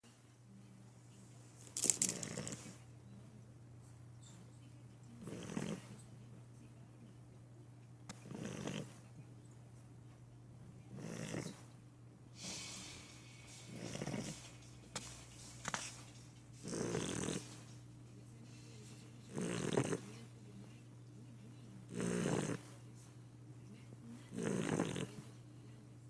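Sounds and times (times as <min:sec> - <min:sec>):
dog snoring: 0:02.1 - 0:02.8, 0:05.2 - 0:06.0, 0:08.1 - 0:09.0, 0:10.9 - 0:11.7, 0:12.4 - 0:14.6, 0:16.6 - 0:17.7, 0:19.2 - 0:20.2, 0:21.9 - 0:22.8, 0:24.3 - 0:25.4.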